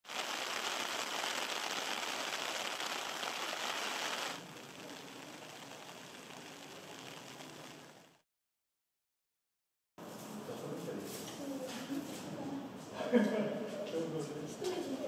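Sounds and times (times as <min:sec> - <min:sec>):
heavy rain hissing: 0:00.0 - 0:08.2
even background hiss: 0:00.1 - 0:08.2.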